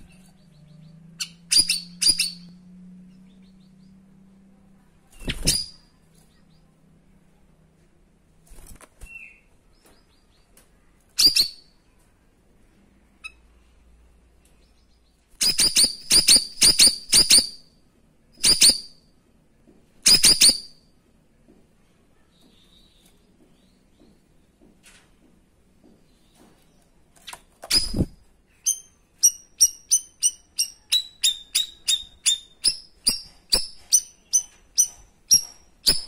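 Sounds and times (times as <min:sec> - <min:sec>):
songbird high-pitched calls: 0:00.0 - 0:04.0, 0:11.2 - 0:11.8, 0:14.6 - 0:17.7, 0:18.4 - 0:19.0, 0:20.0 - 0:20.8, 0:27.7 - 0:36.0.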